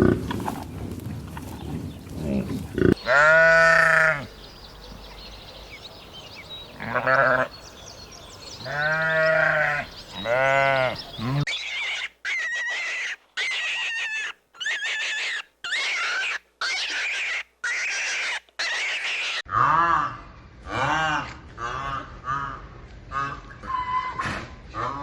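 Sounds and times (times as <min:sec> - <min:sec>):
livestock bleating: 0:02.2 - 0:04.3, 0:06.8 - 0:07.6, 0:08.6 - 0:11.5
high chirpy calls: 0:11.0 - 0:19.4.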